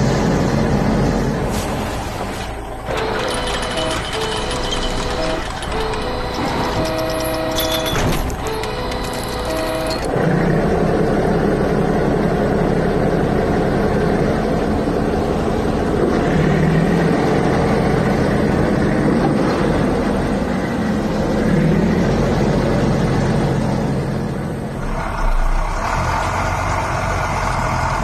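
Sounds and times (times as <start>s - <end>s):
heavy vehicle engine rumbling: 0.0s - 28.0s.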